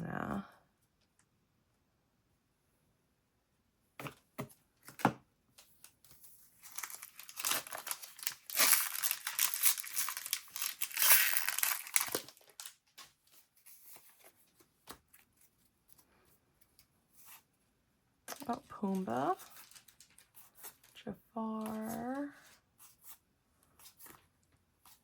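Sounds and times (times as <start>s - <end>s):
wrapper crinkling and tearing: 6.6s - 13.0s, 18.3s - 21.0s.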